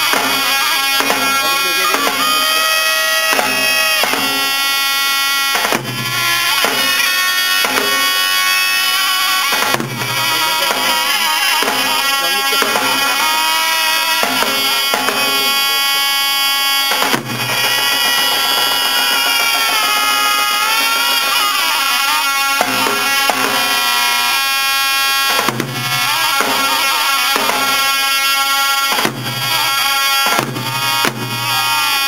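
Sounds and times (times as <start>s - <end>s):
sharp struck accents: 0.0s - 32.0s.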